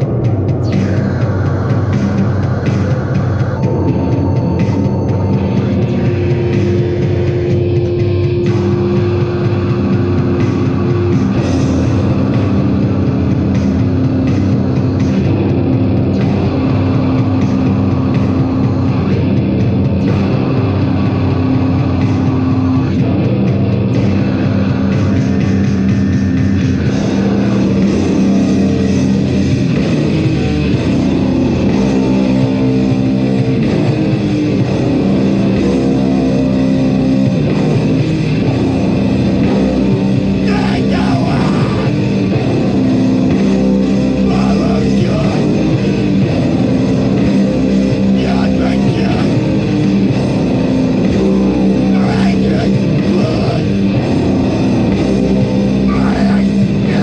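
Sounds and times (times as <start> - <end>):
distorted electric guitars: 0.0 - 57.0
drums: 0.0 - 57.0
shouted vocals: 40.4 - 42.1, 44.2 - 45.6, 48.1 - 49.4, 51.9 - 53.8, 55.9 - 57.0.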